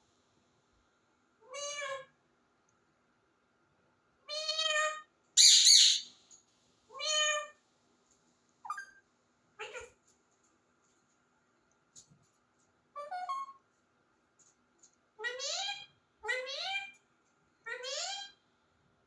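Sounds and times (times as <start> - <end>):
parrot calling: 5.4 - 6.1
parrot harsh screech: 5.4 - 6.1.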